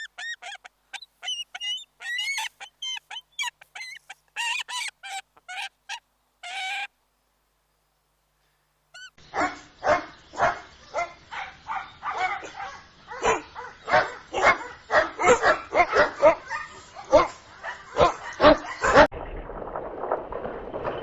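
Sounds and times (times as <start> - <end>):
dog barking and yapping: 0.0 - 5.7, 9.0 - 19.1.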